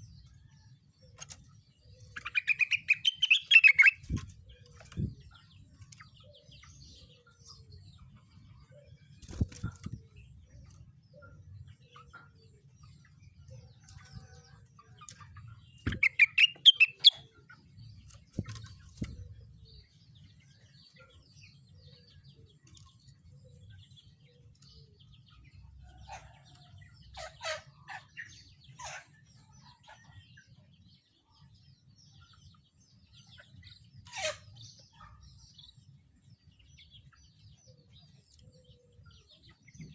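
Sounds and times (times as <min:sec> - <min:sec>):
songbird chirping: 0:00.0 - 0:39.9
wing flaps against cage: 0:09.2 - 0:10.1.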